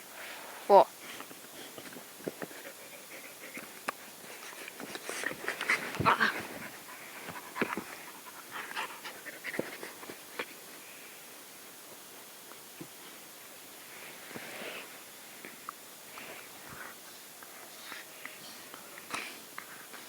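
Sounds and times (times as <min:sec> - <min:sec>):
dog panting and snuffling: 0:01.0 - 0:10.6.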